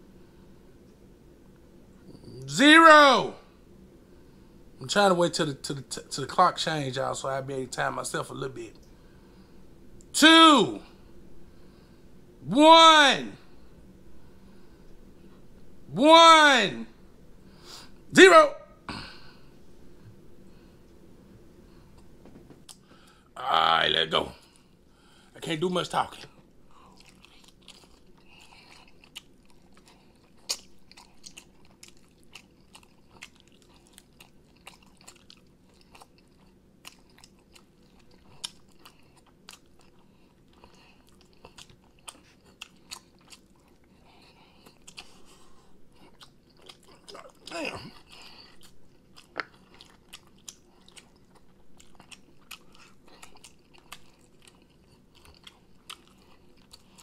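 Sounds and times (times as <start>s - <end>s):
wet chewing: 26.2s - 57.0s
lip smacks: 44.6s - 57.0s.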